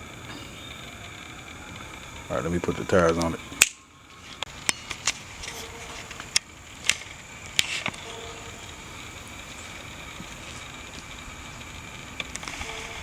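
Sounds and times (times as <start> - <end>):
low hiss: 0.0 - 13.0.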